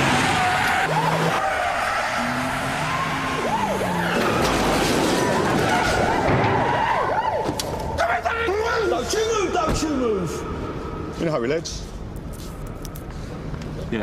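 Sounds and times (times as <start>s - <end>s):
car tyres squealing: 0.0s - 7.6s
road noise: 0.0s - 14.0s.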